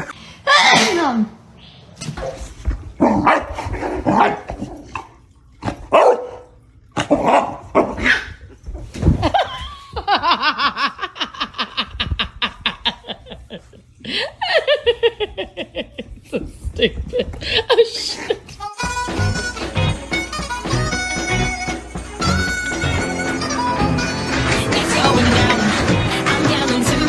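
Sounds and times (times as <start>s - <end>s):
dog barking: 6.0s - 6.4s.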